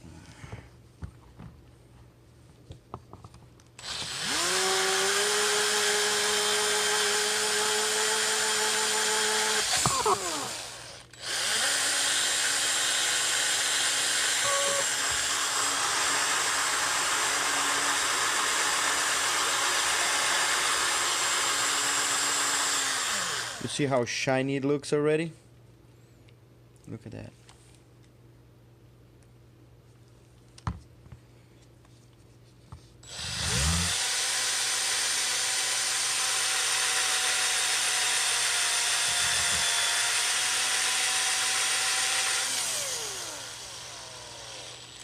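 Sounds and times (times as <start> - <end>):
electric drill whining: 3.8 - 23.7, 33.0 - 45.0.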